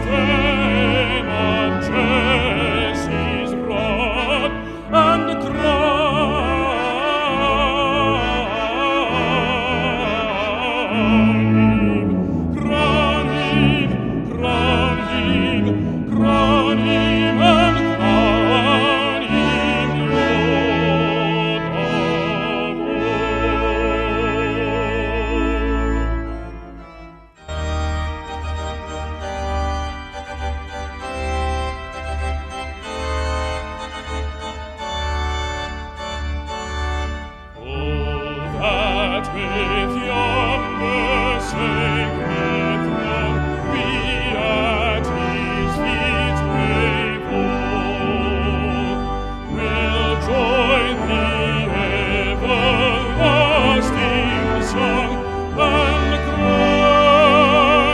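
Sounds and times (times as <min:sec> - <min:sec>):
baritone singing a hymn: 0:00.0 - 0:26.1, 0:37.6 - 0:57.9
brass ensemble playing chords: 0:00.0 - 0:57.9.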